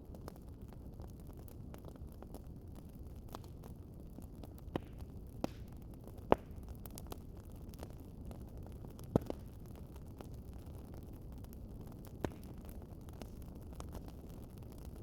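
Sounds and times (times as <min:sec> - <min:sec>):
wood fire crackling: 0:00.0 - 0:15.0
sharp fire pops: 0:04.6 - 0:07.1, 0:09.0 - 0:09.5, 0:12.0 - 0:14.1.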